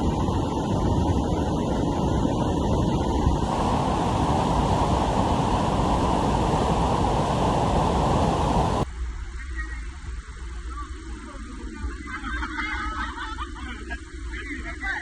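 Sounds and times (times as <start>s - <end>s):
wind buffeting microphone: 0.0s - 8.8s
river rapids rushing: 2.3s - 8.8s.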